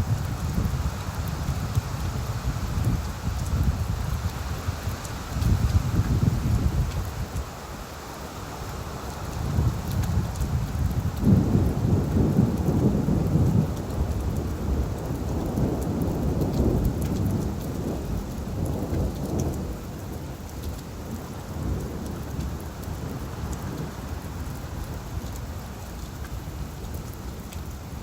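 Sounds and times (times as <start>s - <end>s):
rain falling on leaves: 0.0s - 28.0s
rolling thunder rumble: 9.5s - 20.4s.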